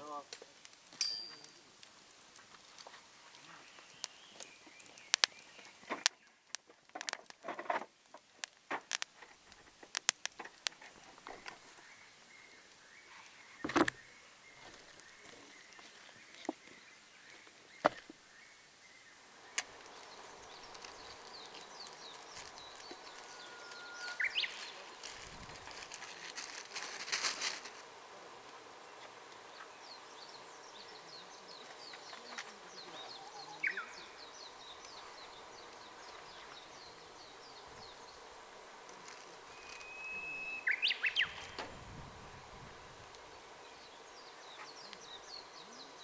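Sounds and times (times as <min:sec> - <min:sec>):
birds twittering: 0:03.3 - 0:07.2, 0:10.4 - 0:26.4, 0:28.8 - 0:46.0
whistled bird songs: 0:03.5 - 0:06.4, 0:11.7 - 0:24.8, 0:29.7 - 0:38.1, 0:39.5 - 0:41.6.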